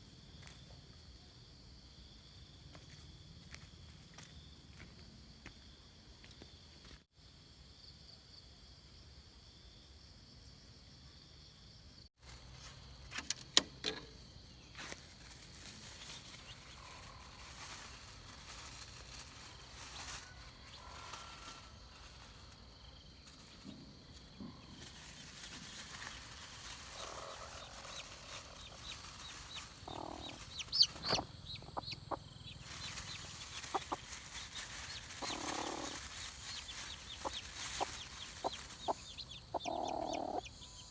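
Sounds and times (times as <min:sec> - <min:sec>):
chickens clucking: 0:26.6 - 0:40.6.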